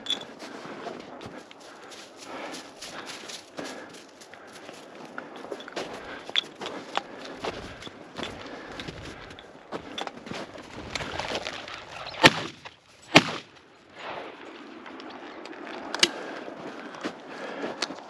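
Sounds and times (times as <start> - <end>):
shotgun shots: 12.2 - 13.5.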